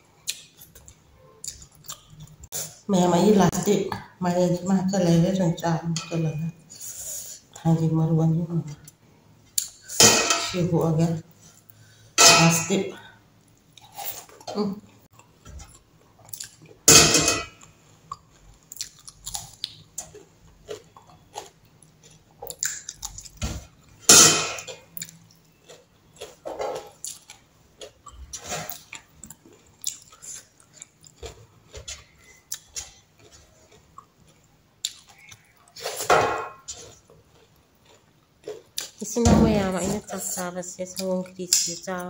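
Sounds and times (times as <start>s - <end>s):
chewing and wet lip smacking: 0.2s - 2.6s, 15.1s - 16.8s, 18.0s - 23.4s, 24.9s - 35.8s.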